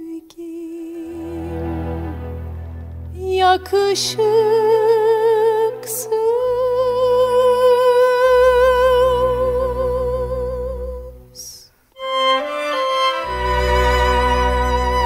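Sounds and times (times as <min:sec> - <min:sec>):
low sustained accompaniment: 0:01.0 - 0:11.1.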